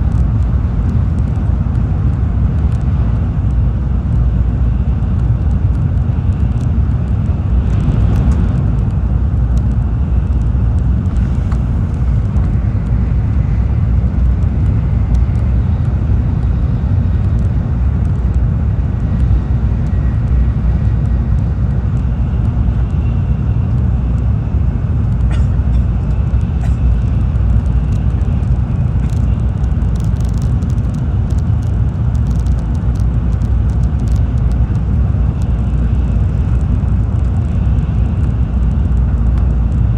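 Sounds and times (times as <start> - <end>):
train wheels rumbling: 5.4 - 15.3
faint clicks: 29.0 - 34.8.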